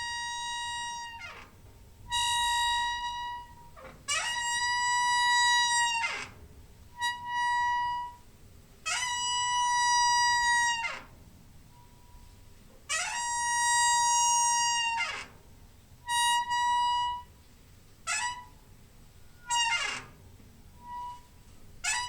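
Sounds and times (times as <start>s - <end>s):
door hinge squealing: 0.0s - 8.2s, 8.9s - 11.2s, 12.9s - 15.4s, 16.1s - 17.3s, 18.1s - 18.6s, 19.3s - 20.2s, 20.8s - 22.0s.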